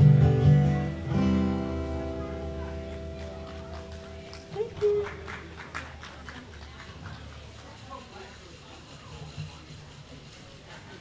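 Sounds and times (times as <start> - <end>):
audience clapping: 2.5 - 8.4.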